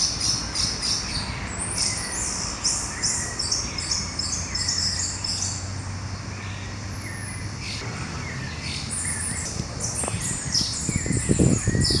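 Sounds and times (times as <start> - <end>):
birds chirping and singing: 6.4 - 12.0
low thumps: 7.6 - 12.0.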